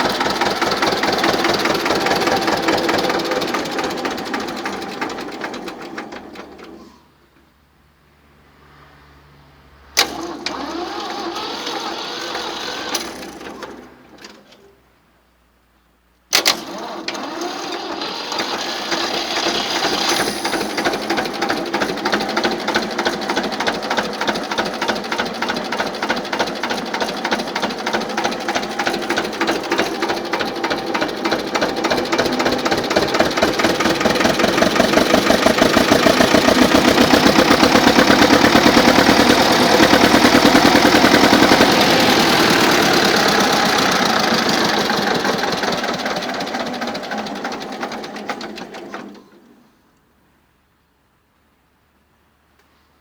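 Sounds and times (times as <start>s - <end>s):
diesel tractor engine knocking: 0.0s - 6.4s, 18.1s - 48.8s.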